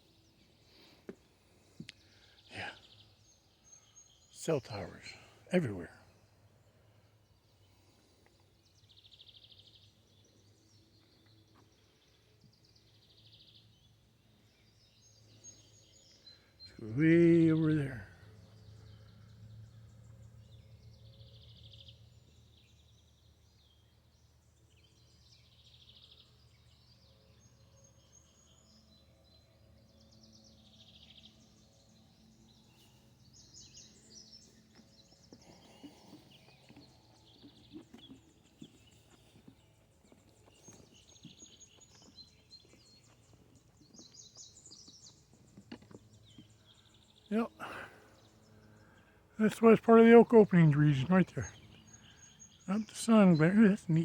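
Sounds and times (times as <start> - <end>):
faint bird calls: 30.3 - 54.0.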